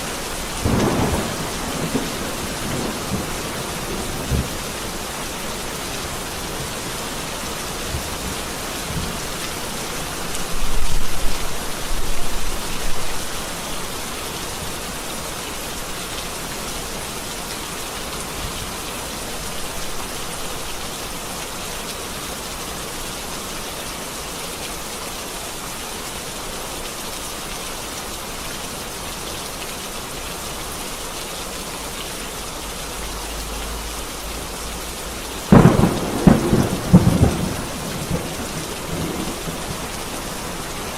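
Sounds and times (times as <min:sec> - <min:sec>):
rain falling: 0:00.0 - 0:40.9
thunder rumbling: 0:00.5 - 0:05.0, 0:35.5 - 0:40.9
sharp thunderclap: 0:00.6 - 0:04.7, 0:35.5 - 0:40.9.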